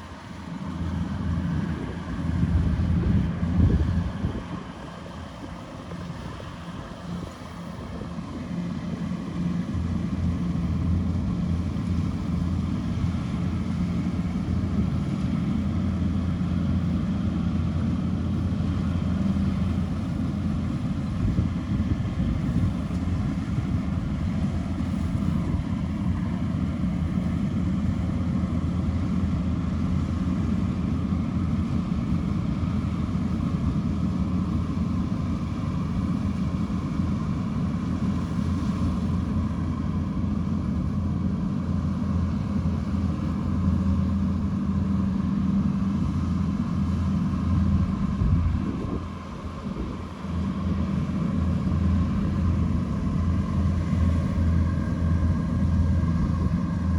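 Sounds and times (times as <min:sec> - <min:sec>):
combine harvester droning: 0:00.0 - 0:56.9.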